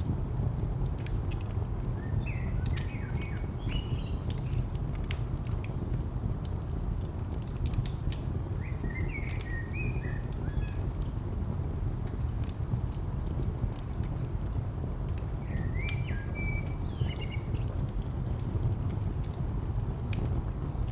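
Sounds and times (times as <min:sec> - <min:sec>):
distant traffic rumble: 0:00.0 - 0:20.9
wood fire crackling: 0:00.0 - 0:20.9
small bird chirping: 0:15.5 - 0:17.8.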